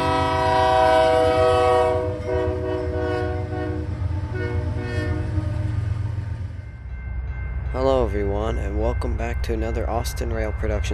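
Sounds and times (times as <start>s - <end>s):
locomotive air horn chord: 0.0s - 5.5s
low rumble of engine and train: 0.0s - 10.9s.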